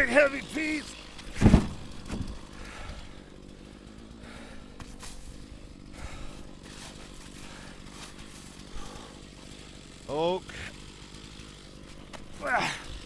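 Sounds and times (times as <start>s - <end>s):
engine idling: 0.0s - 13.0s
firewood round landing with thump: 1.2s - 2.4s.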